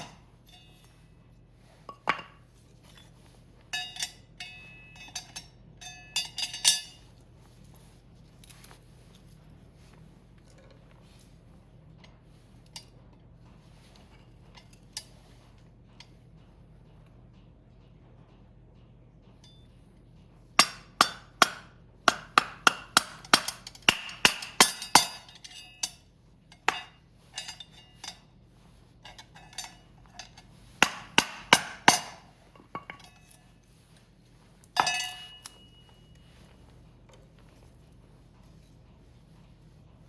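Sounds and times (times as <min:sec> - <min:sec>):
firewood clacking on metal stand: 0:29.1 - 0:33.4, 0:34.6 - 0:35.7.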